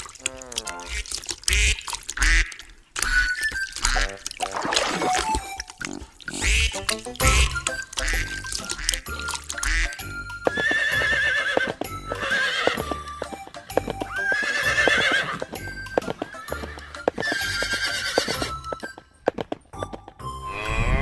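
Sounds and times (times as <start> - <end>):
background music: 3.1 - 21.0
hoof clip-clops: 6.4 - 21.0
horse whinnying: 10.4 - 18.8.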